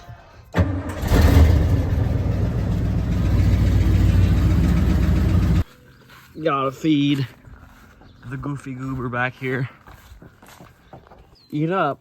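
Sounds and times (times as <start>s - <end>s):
vehicle engine humming: 0.6s - 6.0s.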